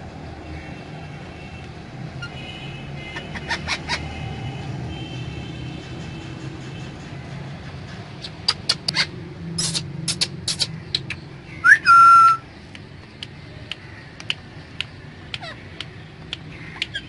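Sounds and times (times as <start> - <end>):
parrot loud whistle: 11.6 - 12.4
sharp clicks: 12.7 - 17.0.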